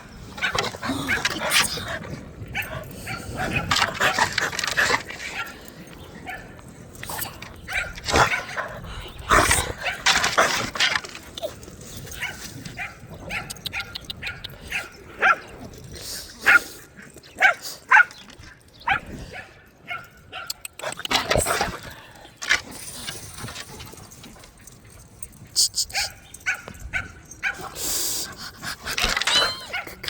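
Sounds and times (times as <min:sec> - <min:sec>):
dogs barking and yipping: 0:00.0 - 0:30.0
dog whines: 0:29.0 - 0:30.0.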